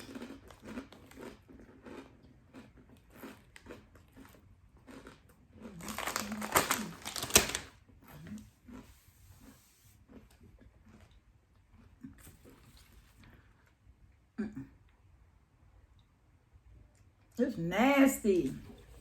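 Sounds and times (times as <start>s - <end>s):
chip bag crinkling: 0.0s - 7.8s
potato chips being chewed: 0.0s - 13.8s.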